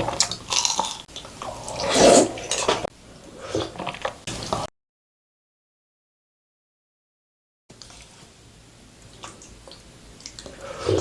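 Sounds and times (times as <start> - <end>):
wet squishing food sounds: 0.0 - 2.9, 9.0 - 11.0.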